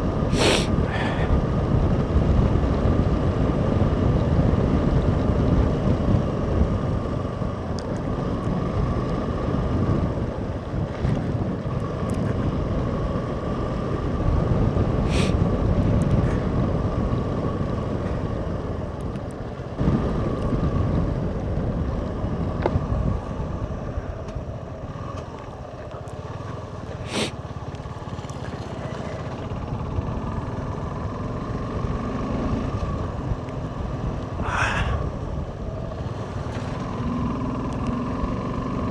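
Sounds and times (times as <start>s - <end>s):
motorcycle engine humming: 0.0s - 38.9s
wind buffeting microphone: 32.6s - 36.6s.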